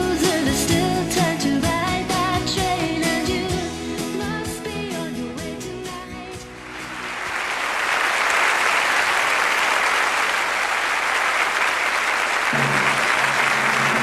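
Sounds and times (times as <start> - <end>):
music: 0.0 - 7.6, 12.6 - 14.0
audience applause: 6.7 - 14.0.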